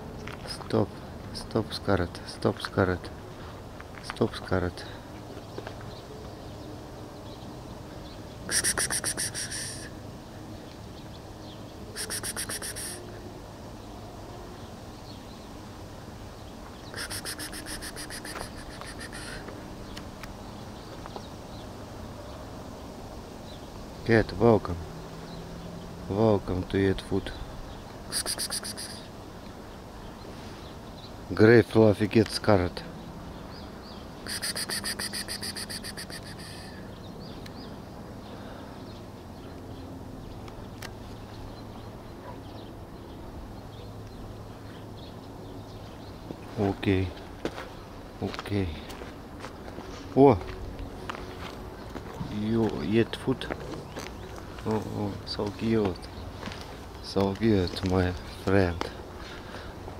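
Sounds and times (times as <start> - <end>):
steady low outdoor hum: 0.0 - 59.9
bird trilling: 8.5 - 9.9, 11.9 - 13.1, 16.8 - 19.5, 28.1 - 29.1, 34.2 - 37.7
faint bird chirps: 11.0 - 13.2, 16.7 - 20.0, 27.2 - 29.2, 33.4 - 39.8.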